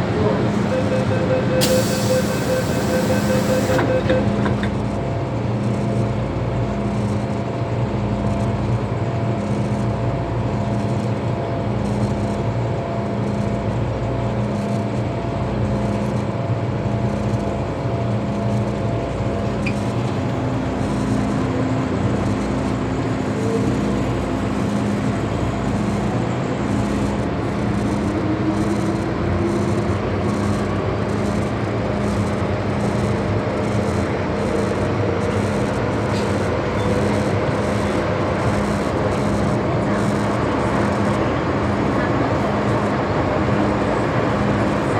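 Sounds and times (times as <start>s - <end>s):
motor whine: 0.0s - 4.8s.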